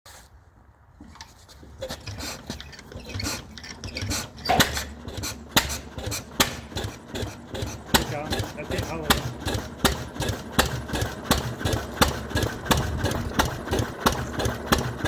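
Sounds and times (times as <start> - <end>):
metallic clatter and clicks: 1.0 - 7.0
sharp engine knocks: 1.8 - 15.0
stationary engine starting up: 1.8 - 15.0.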